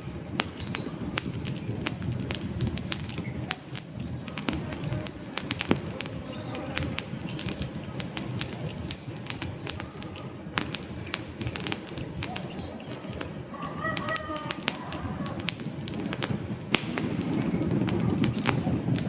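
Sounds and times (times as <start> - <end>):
campfire crackling: 0.0 - 19.0
bird chirps: 0.5 - 3.7, 5.7 - 7.6, 11.0 - 15.8.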